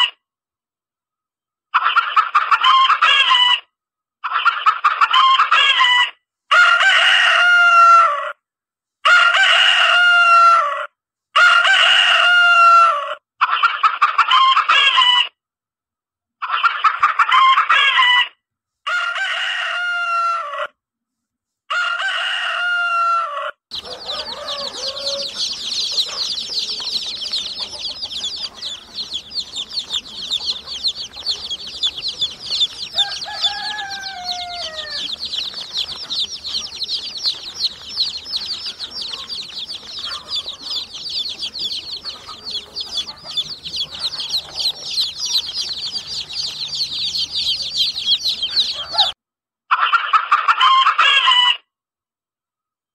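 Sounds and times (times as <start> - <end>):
rooster crowing: 5.1 - 8.4, 9.0 - 13.2, 18.9 - 20.7, 21.7 - 49.2
chicks peeping: 23.7 - 49.2.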